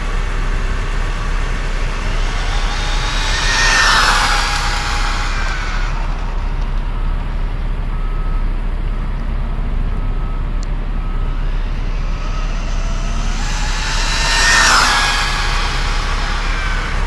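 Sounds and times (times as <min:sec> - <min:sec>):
idling vehicles rumble: 0:00.0 - 0:17.0
electric motor whine and hiss: 0:00.9 - 0:07.4, 0:11.2 - 0:17.0.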